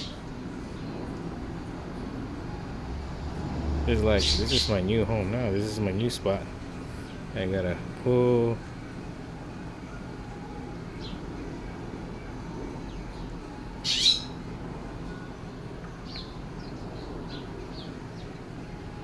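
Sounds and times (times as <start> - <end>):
steady low hum: 0.0 - 19.0
harsh bird call: 13.8 - 14.4.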